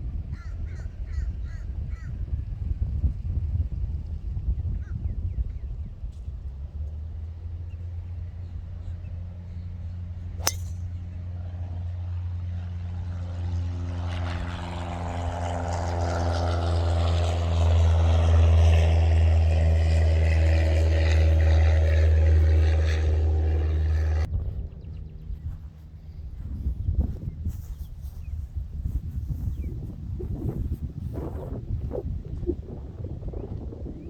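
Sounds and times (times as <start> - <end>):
vehicle engine humming: 5.9 - 29.7.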